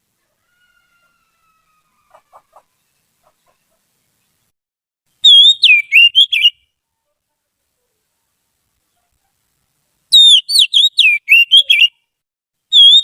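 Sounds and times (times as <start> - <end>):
bird whistling phrase: 5.2 - 6.5, 10.2 - 12.0, 12.8 - 13.0.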